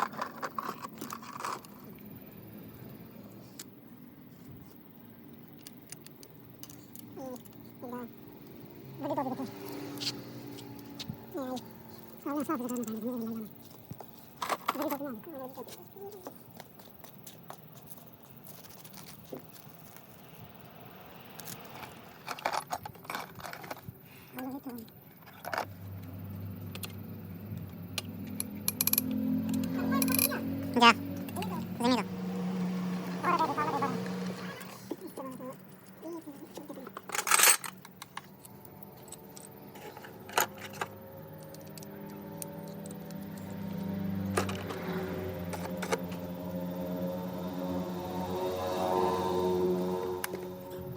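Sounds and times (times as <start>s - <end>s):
metal tools clicking and scraping: 0.0s - 2.1s, 26.7s - 31.6s, 34.6s - 43.6s.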